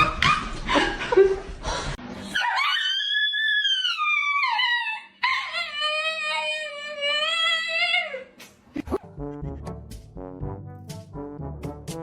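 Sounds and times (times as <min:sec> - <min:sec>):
dog howling: 0:02.3 - 0:08.1.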